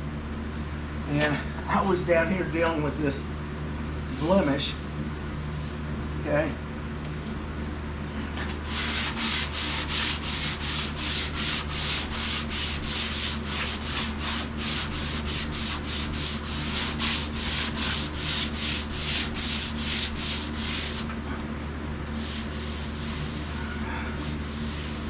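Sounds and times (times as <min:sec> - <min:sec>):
steady low hum: 0:00.0 - 0:25.0
sandpaper rubbing: 0:04.2 - 0:05.8, 0:08.6 - 0:21.1, 0:22.2 - 0:25.0.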